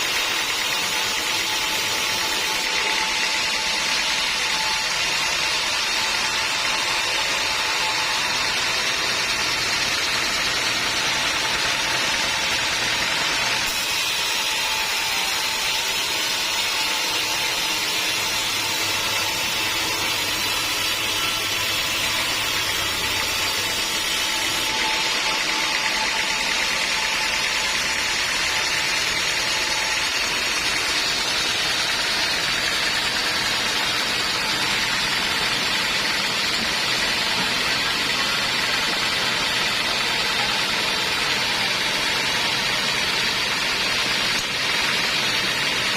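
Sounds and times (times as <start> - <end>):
band sawmill sawing a log: 0.0 - 45.9.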